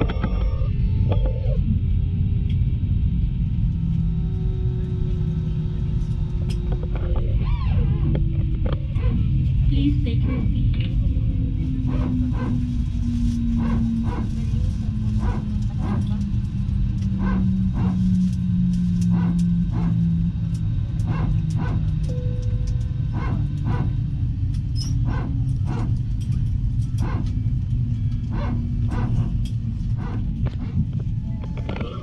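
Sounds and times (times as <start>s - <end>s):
airliner cabin rumble: 0.0s - 32.0s
low engine tone: 0.0s - 32.0s.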